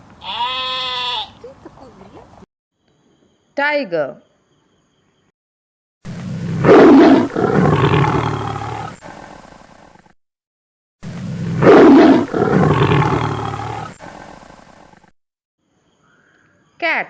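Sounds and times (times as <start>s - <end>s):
tiger roaring: 6.1s - 10.1s, 11.0s - 15.1s.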